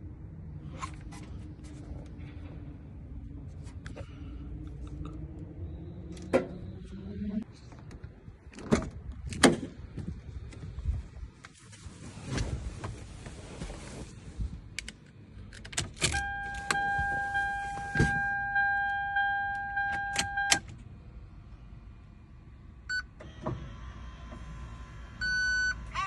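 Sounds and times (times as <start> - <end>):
car warning buzzer: 16.2 - 20.6
short beep: 16.2 - 20.6.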